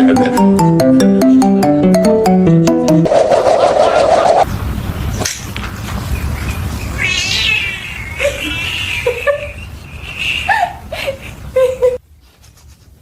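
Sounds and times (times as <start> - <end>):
cat meowing and yowling: 7.0 - 9.2.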